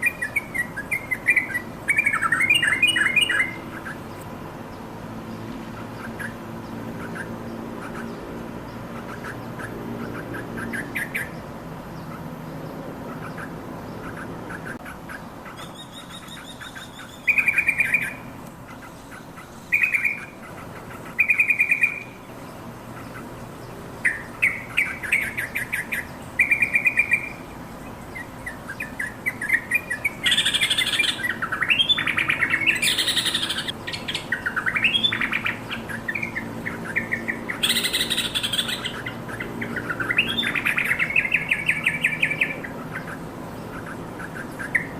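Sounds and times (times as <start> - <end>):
bird song with bubbly phrases: 0.0 - 4.2, 15.6 - 18.3, 19.7 - 44.9
bird chattering: 0.0 - 4.3, 5.7 - 11.4, 13.0 - 44.9.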